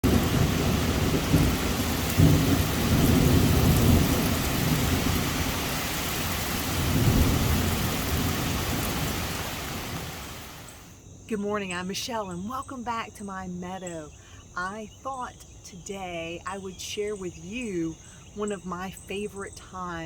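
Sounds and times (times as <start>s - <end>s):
thunder rumbling: 0.0s - 10.9s
heavy rain pouring: 0.0s - 11.0s.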